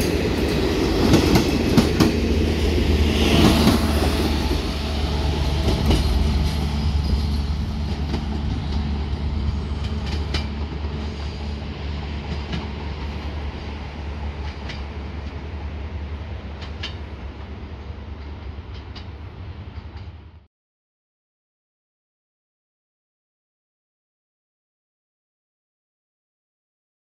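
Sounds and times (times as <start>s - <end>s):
train wheels clicking over rail joints: 0.0s - 11.4s, 14.3s - 15.5s, 16.5s - 17.5s, 18.1s - 20.2s
train rolling low hum: 0.0s - 20.5s.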